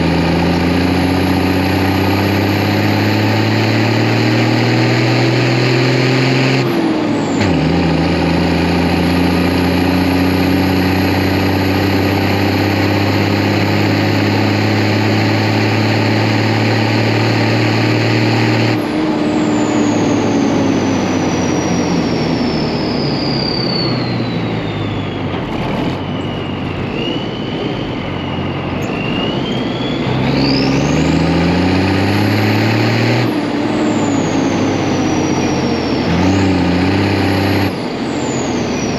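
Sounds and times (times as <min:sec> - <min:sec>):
diesel truck engine running: 0:00.0 - 0:38.9
turbo whistle: 0:19.4 - 0:31.6.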